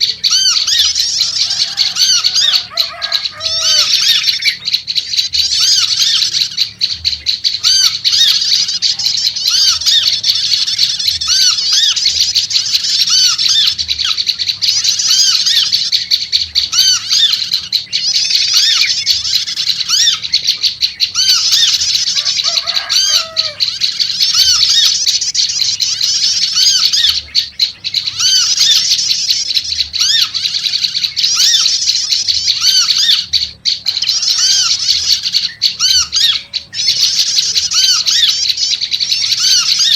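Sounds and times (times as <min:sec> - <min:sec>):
birds chattering in high scolding runs: 0:00.0 - 0:39.9
lower arched bird calls: 0:00.0 - 0:39.9.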